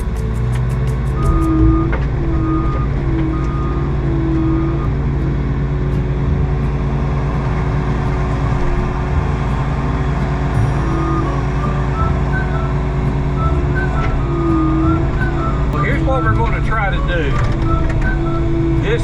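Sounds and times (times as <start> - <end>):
skid steer engine running: 0.0 - 19.0
backup alarm beeping: 1.1 - 19.0.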